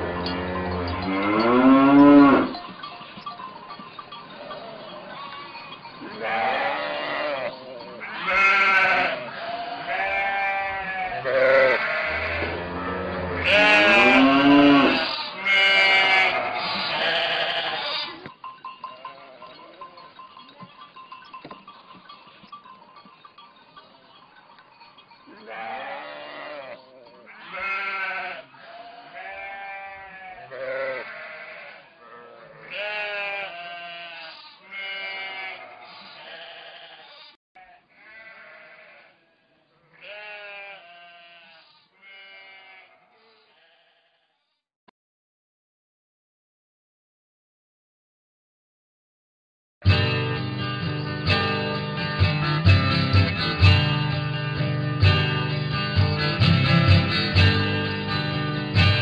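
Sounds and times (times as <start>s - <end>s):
sheep bleating: 0.0s - 2.7s, 4.4s - 20.8s, 24.9s - 44.3s.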